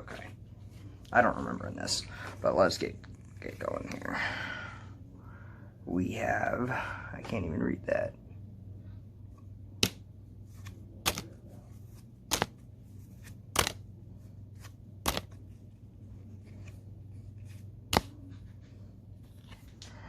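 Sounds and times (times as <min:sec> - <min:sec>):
low steady hum: 0:00.0 - 0:20.0
trading cards snapping: 0:09.8 - 0:10.0, 0:10.6 - 0:11.4, 0:12.2 - 0:12.6, 0:13.2 - 0:13.9, 0:14.6 - 0:15.4, 0:17.9 - 0:18.4.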